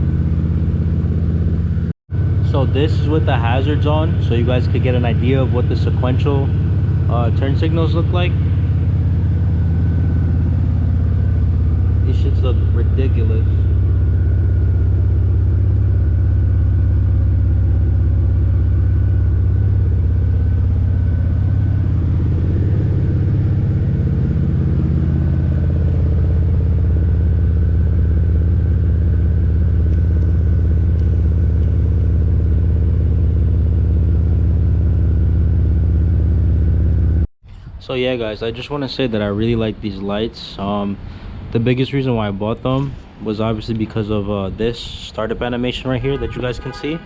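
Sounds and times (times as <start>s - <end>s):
car engine idling: 0.0s - 37.3s.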